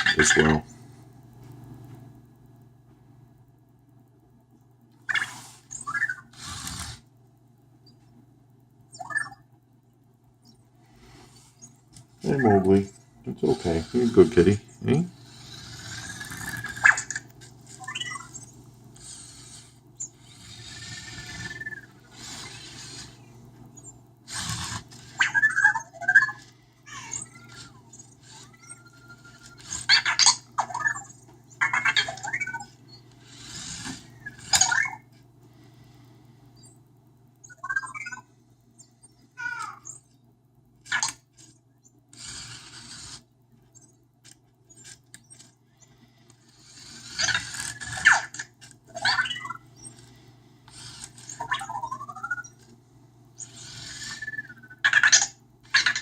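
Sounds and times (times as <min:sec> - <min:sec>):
motor whirs and clicks: 0:04.9 - 0:07.1, 0:10.4 - 0:38.2, 0:38.8 - 0:52.8, 0:53.4 - 0:56.0
robot electronic chirps and beeps: 0:08.9 - 0:09.5, 0:17.8 - 0:18.6, 0:27.1 - 0:35.1, 0:37.4 - 0:38.9, 0:48.9 - 0:50.0, 0:51.3 - 0:52.7, 0:53.4 - 0:55.2.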